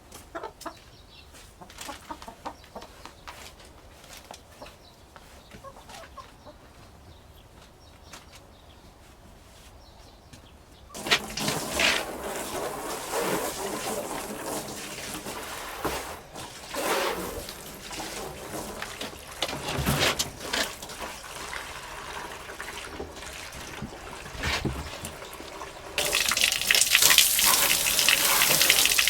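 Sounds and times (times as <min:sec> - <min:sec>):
liquid trickling: 0:11.0 - 0:29.0
pouring water rushing: 0:11.0 - 0:29.0
knocks and rustles: 0:17.4 - 0:21.6, 0:22.9 - 0:29.0.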